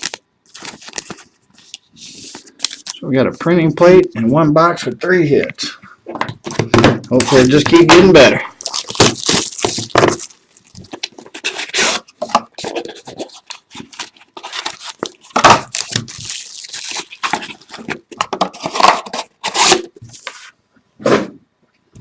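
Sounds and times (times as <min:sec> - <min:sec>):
wrapper and cardboard snapping: 0:00.0 - 0:01.8, 0:07.1 - 0:20.0
packaging ripping and crinkling: 0:00.0 - 0:03.0, 0:07.1 - 0:20.3.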